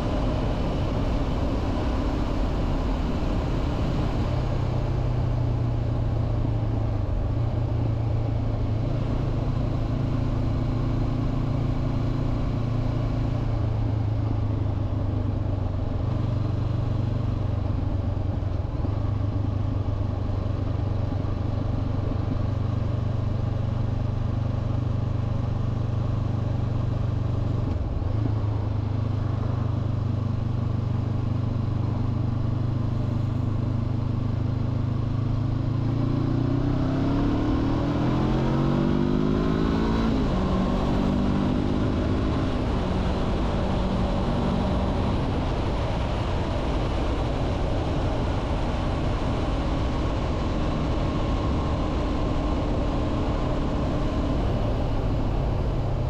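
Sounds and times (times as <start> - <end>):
wind rush on microphone: 40.2 - 56.0.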